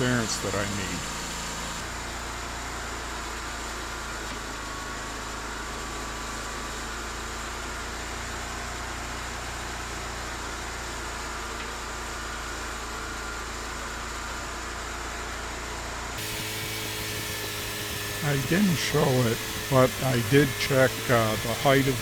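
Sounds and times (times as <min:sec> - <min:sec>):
sawmill humming: 0:00.0 - 0:02.4, 0:16.2 - 0:22.0.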